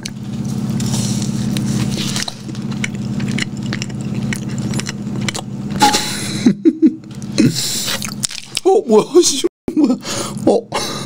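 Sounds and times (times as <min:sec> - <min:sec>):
steady low hum: 0:00.0 - 0:11.0
wet chewing mouth clicks: 0:01.5 - 0:05.5, 0:07.9 - 0:08.7.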